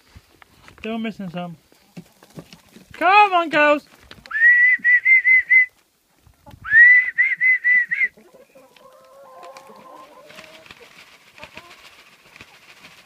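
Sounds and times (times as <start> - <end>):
hens clucking: 1.6 - 3.0, 6.0 - 6.8, 8.0 - 13.0
person whistling: 4.3 - 5.7, 6.6 - 8.2.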